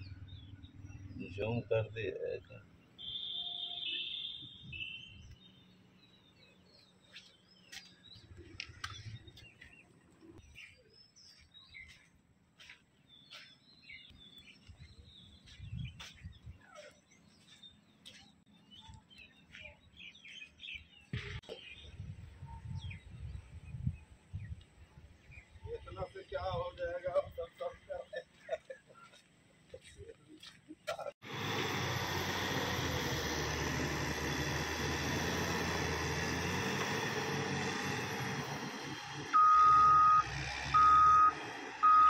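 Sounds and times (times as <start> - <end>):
birds chirping: 0.0 - 30.8.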